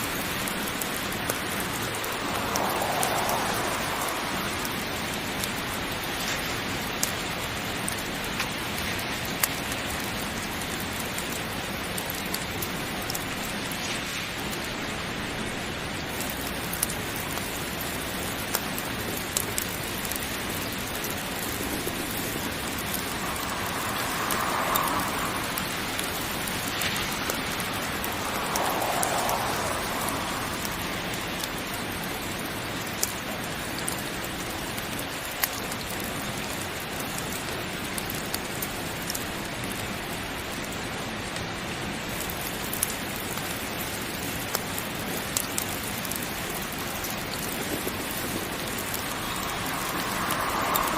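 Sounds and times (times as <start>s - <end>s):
heavy rain falling: 0.0s - 50.9s
sharp ticks: 18.5s - 31.8s, 47.8s - 50.9s.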